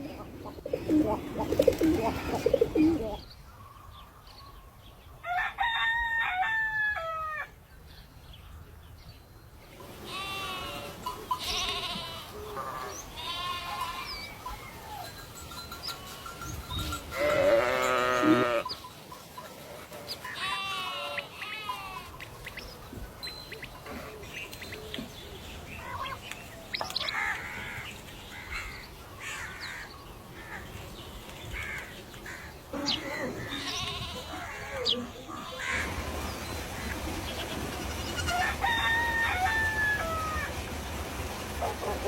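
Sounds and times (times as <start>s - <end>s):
livestock bleating: 10.0s - 14.2s, 17.0s - 18.8s, 20.3s - 22.2s, 32.7s - 35.0s.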